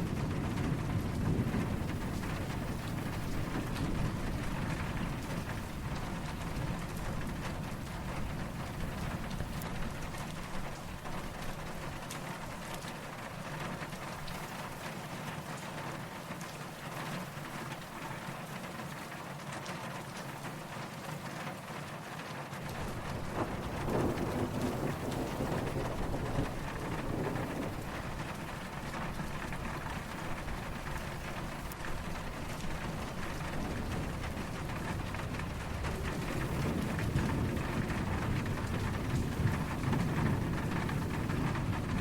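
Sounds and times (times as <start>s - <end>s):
distant thunder rumble: 0.0s - 12.7s, 22.7s - 42.0s
raindrop patter: 0.0s - 42.0s
steady rain falling: 0.0s - 42.0s.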